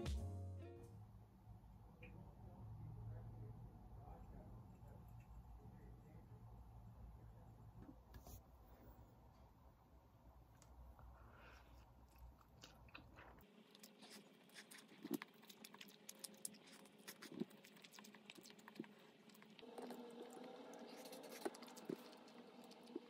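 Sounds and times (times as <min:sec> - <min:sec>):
chewing with small crunches: 0:10.5 - 0:23.0.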